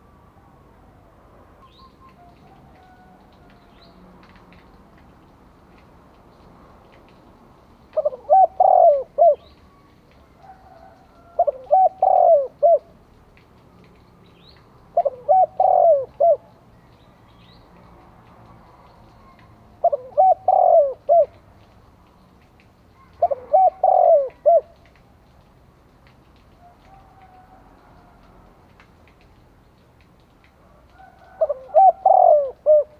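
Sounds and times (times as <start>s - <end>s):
dove cooing: 8.0s - 9.8s, 10.4s - 13.0s, 14.9s - 16.6s, 19.2s - 21.4s, 23.0s - 24.9s, 30.9s - 32.9s.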